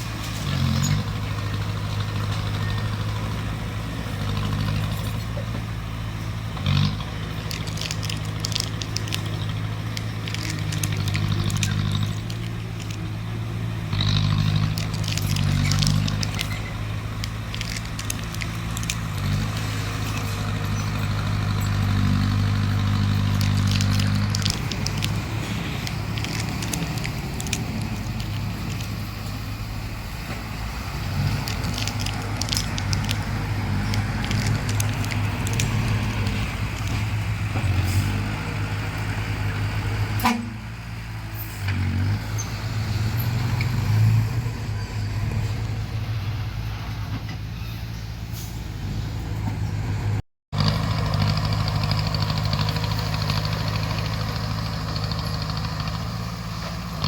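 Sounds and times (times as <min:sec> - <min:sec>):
bulldozer diesel engine under load: 0:00.0 - 0:57.0
sharp clicks and cracks: 0:06.6 - 0:13.1, 0:14.0 - 0:29.4, 0:31.2 - 0:37.7.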